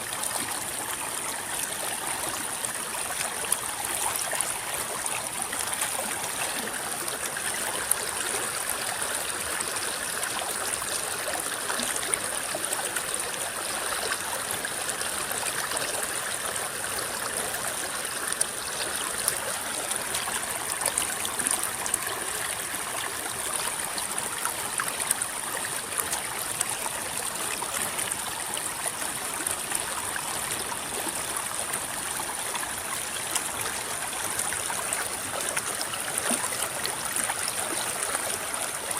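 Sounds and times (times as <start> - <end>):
river water babbling: 0.0 - 38.9.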